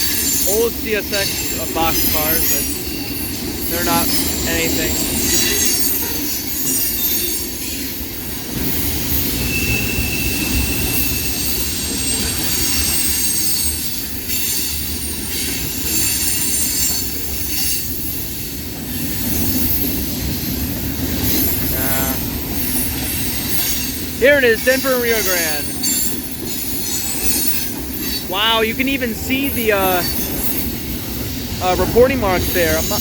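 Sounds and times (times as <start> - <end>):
high wheel squeal: 0.0 - 8.0, 8.6 - 20.1
freight train wheels rumbling: 0.0 - 33.0.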